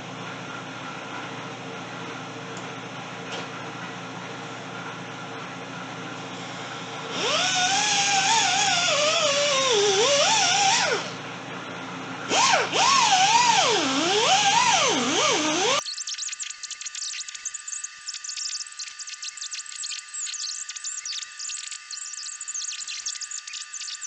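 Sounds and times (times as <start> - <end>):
angle grinder grinding metal: 12.3 - 24.0.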